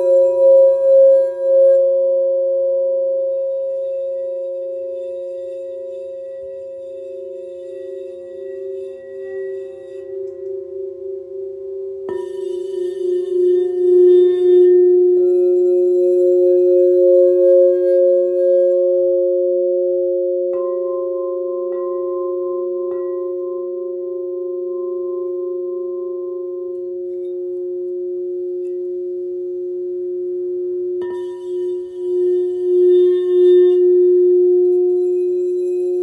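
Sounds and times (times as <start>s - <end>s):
singing bowls ringing: 0.0s - 36.0s
singing bowl struck: 7.2s - 19.4s, 30.9s - 36.0s.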